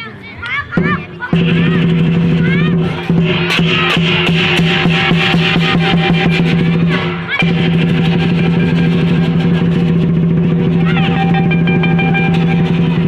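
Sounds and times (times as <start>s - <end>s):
drum and cymbal beat: 0.7s - 13.0s
held low note: 3.6s - 13.0s.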